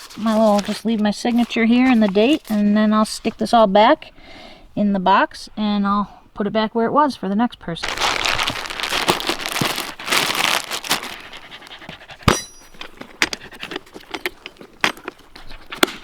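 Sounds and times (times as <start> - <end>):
rustling and crinkling: 0.0 - 3.7, 7.8 - 16.0
dog panting: 10.8 - 14.1, 15.0 - 16.0
snap with metallic ring: 12.3 - 12.8.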